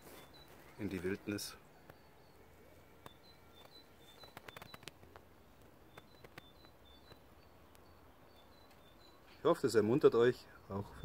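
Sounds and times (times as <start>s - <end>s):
small bird chirping faintly: 0.0s - 11.0s.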